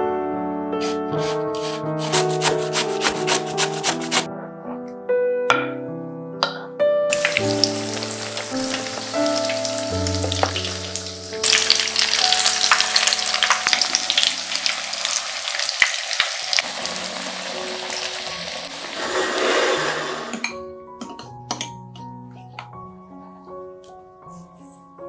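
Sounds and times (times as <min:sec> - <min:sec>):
vegetables sizzling in oil: 0:07.1 - 0:20.2.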